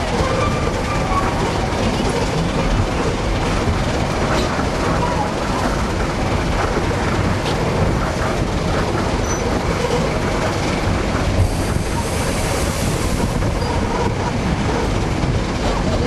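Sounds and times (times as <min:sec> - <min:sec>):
train cars rumbling over track: 0:00.0 - 0:16.0.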